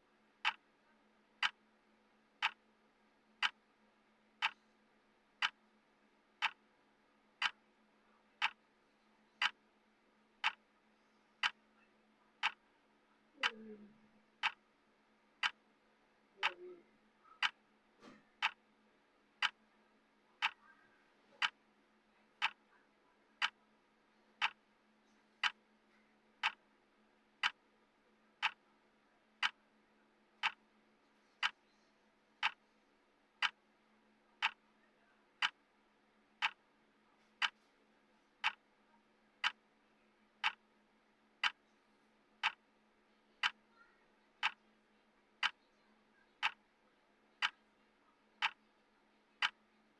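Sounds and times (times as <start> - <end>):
faint steady hum: 0.0 - 49.9
clock ticking: 0.4 - 0.7, 1.4 - 1.6, 2.4 - 2.6, 3.4 - 3.7, 4.4 - 4.6, 5.4 - 5.6, 6.3 - 6.6, 7.4 - 7.6, 8.4 - 8.7, 9.4 - 9.6, 10.4 - 10.7, 11.4 - 11.6, 12.4 - 12.6, 14.4 - 14.6, 15.4 - 15.6, 16.4 - 16.7, 18.4 - 18.6, 19.4 - 19.6, 20.4 - 20.7, 21.4 - 21.6, 22.4 - 22.7, 23.4 - 23.6, 24.4 - 24.7, 25.4 - 25.6, 26.4 - 26.6, 27.4 - 27.6, 28.4 - 28.6, 29.4 - 29.6, 30.4 - 30.6, 32.4 - 32.6, 33.4 - 33.6, 34.4 - 34.6, 35.4 - 35.7, 36.4 - 36.7, 37.4 - 37.6, 38.4 - 38.7, 39.4 - 39.6, 40.4 - 40.7, 41.4 - 41.7, 42.4 - 42.7, 43.4 - 43.7, 44.4 - 44.6, 45.4 - 45.7, 46.4 - 46.7, 47.4 - 47.6, 48.4 - 48.7, 49.4 - 49.7.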